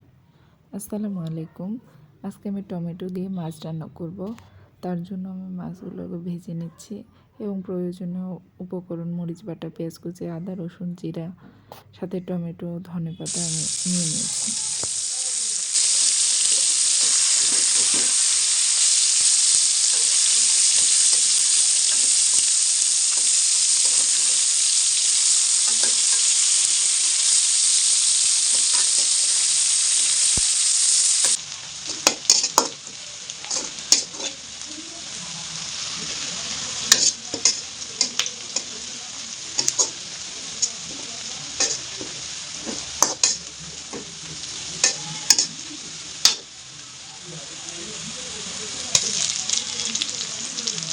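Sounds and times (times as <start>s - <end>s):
fish frying in hot oil: 13.3s - 50.9s
utensil clicking against pan: 36.9s - 38.7s, 39.6s - 40.0s, 41.6s - 44.1s.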